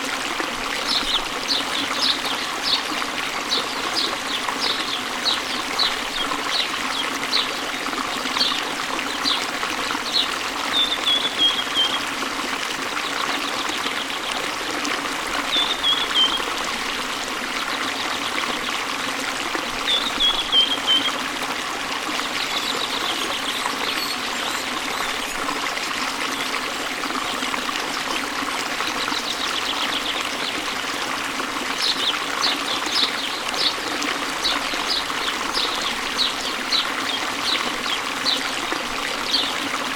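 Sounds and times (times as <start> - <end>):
small birds chirping: 15.5 - 16.4.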